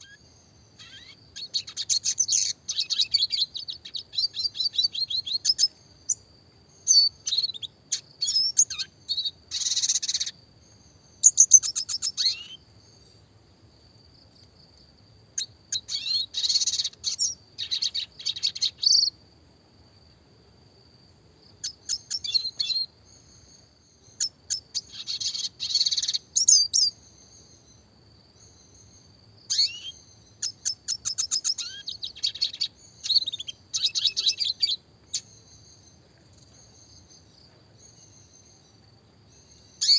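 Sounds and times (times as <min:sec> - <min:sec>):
bird singing twittering trills: 0:00.0 - 0:14.6, 0:15.3 - 0:19.3, 0:21.4 - 0:39.9.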